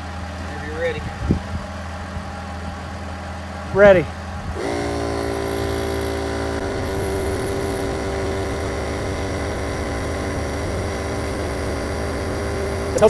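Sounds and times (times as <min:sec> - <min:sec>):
air compressor running: 0:03.8 - 0:13.0
low steady drone: 0:04.5 - 0:13.0.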